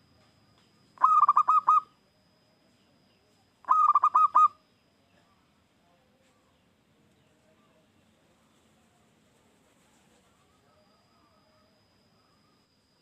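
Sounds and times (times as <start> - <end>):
dove cooing song: 1.0 - 1.9, 3.6 - 4.6.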